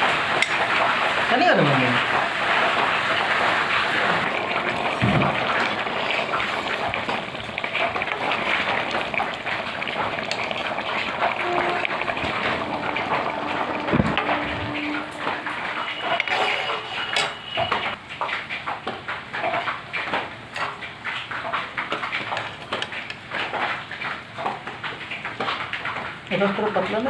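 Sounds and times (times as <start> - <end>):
heavy rain pouring: 0.0 - 27.0
metal spoon scraping metal pan: 14.2 - 18.0.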